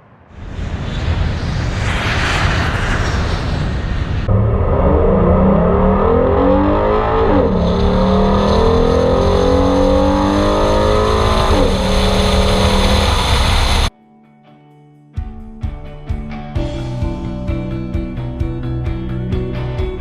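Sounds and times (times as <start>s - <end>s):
car engine accelerating hard: 4.2s - 13.9s.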